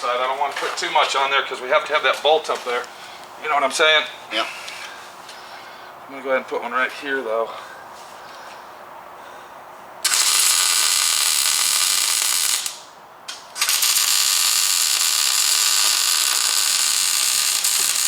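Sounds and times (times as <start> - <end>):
welder arc crackling and hissing: 10.0 - 18.0.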